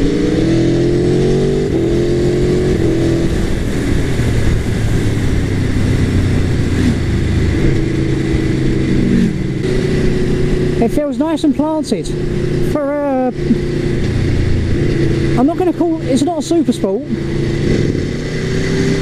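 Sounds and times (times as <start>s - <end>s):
motorcycle engine pulling hard: 0.0s - 19.0s.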